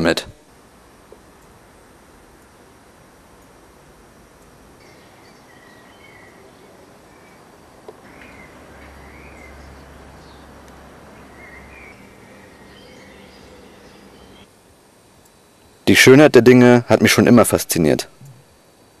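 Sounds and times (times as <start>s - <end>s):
steady hiss: 0.0s - 19.0s
birds chirping: 4.8s - 14.5s.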